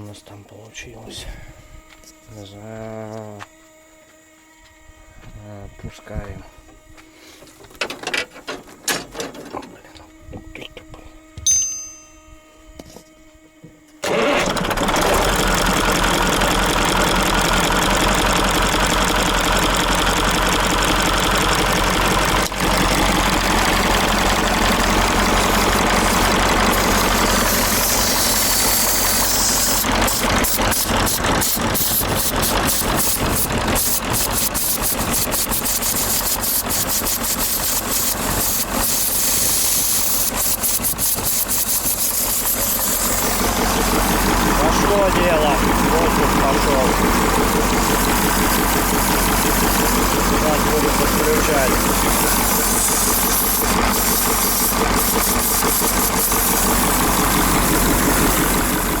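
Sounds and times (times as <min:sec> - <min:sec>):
diesel truck engine idling: 0:14.0 - 0:59.0.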